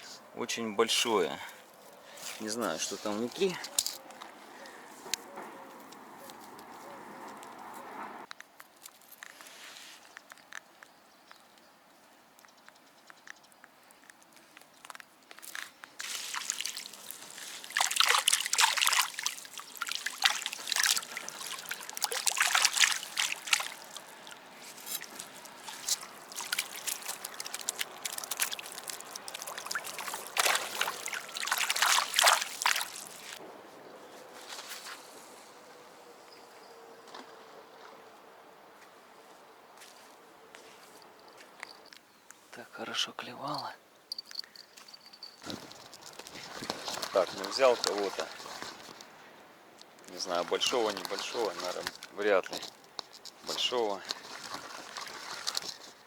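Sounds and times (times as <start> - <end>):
water sloshing and dripping: 15.4 - 33.4, 45.4 - 49.2, 49.8 - 56.0.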